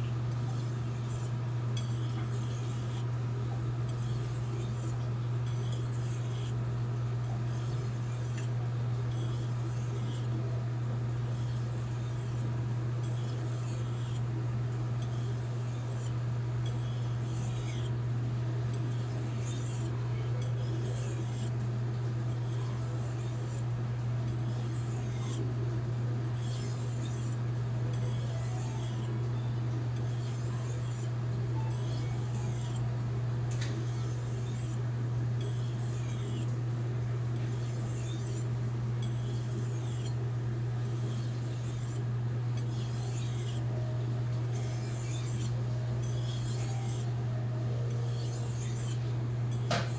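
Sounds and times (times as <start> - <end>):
steady low hum: 0.0 - 49.9
knife scraping on whetstone: 0.4 - 3.1, 3.9 - 6.6, 7.4 - 8.5, 9.1 - 10.3, 11.3 - 14.3, 15.0 - 18.0, 18.7 - 21.5, 22.4 - 23.7, 24.3 - 25.4, 26.4 - 32.9, 33.5 - 34.8, 35.4 - 36.5, 37.4 - 40.2, 41.0 - 43.8, 44.5 - 47.2, 47.9 - 49.9.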